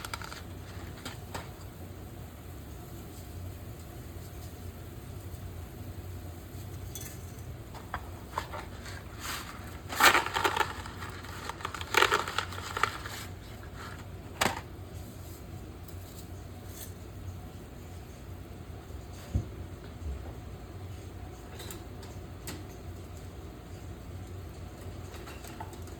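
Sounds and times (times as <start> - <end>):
crunching crackling rustle: 0.0 - 1.5, 8.0 - 14.4.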